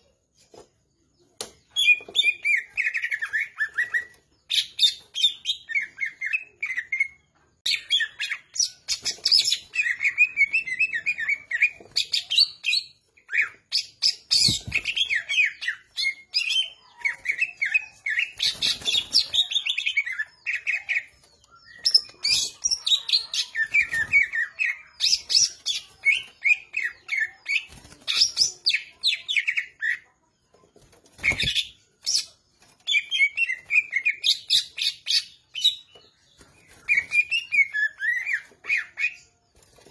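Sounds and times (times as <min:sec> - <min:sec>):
bird chirping and whistling: 0:36.6 - 0:39.3.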